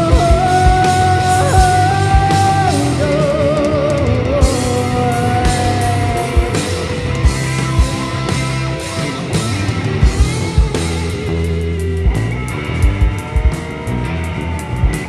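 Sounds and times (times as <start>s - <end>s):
bass line: 0.0s - 15.0s
rock band playing live: 0.0s - 15.0s
wavering lead melody: 0.0s - 15.0s.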